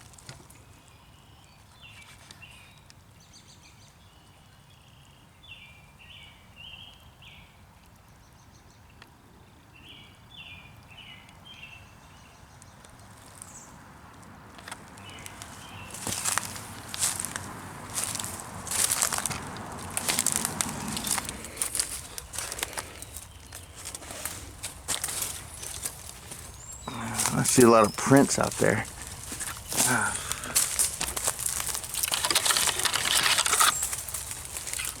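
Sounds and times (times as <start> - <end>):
faint background noise: 0.0 - 35.0
crunching footsteps: 14.5 - 35.0
bird calling clipped notes: 31.0 - 35.0.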